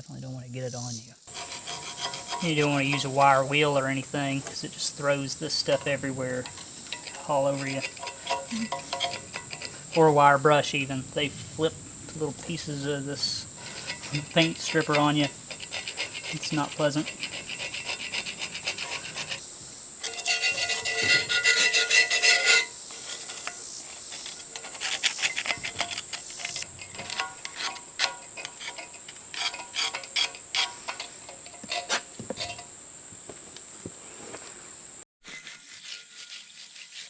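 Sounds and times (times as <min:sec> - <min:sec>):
hand scraping paint off metal: 0:01.3 - 0:10.2, 0:12.2 - 0:19.4, 0:20.0 - 0:32.7.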